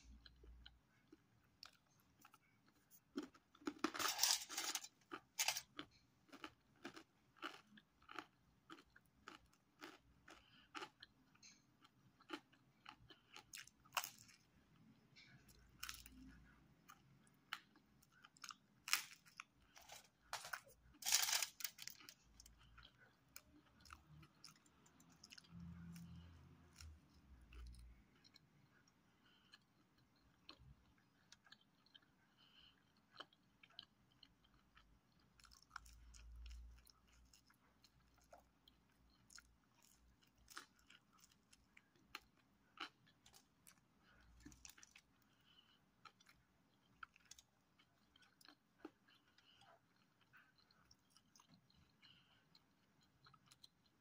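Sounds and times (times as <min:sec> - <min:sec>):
person crunching pizza crust: 0:00.2 - 0:14.4, 0:15.8 - 0:28.4.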